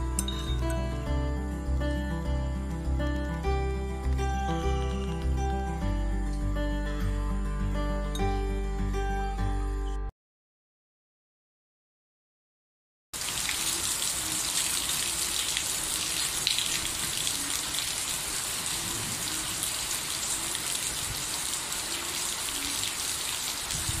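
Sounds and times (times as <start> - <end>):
steady rain falling: 13.2 - 24.0.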